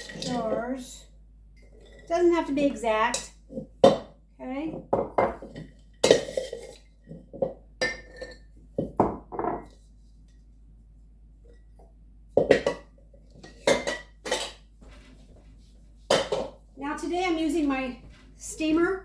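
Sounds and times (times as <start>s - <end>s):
glass jars clinking: 0.0s - 0.6s, 5.0s - 9.7s, 12.4s - 14.6s.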